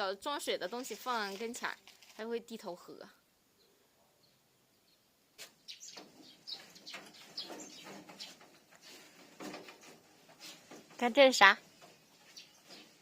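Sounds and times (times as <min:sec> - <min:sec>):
faint bird chirps: 0:03.5 - 0:08.4.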